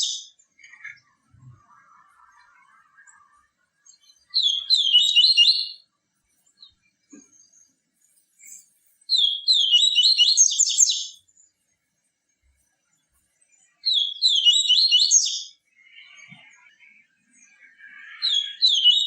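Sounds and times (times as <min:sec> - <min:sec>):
small bird singing high notes: 0:04.2 - 0:05.9, 0:09.1 - 0:11.2, 0:13.8 - 0:16.2, 0:18.1 - 0:19.0.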